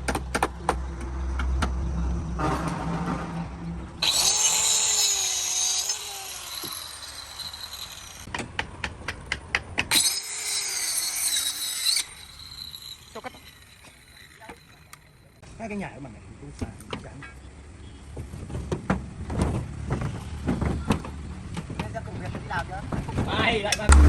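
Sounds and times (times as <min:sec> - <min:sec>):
power tool high-pitched whine: 0:04.0 - 0:08.3, 0:09.9 - 0:15.4.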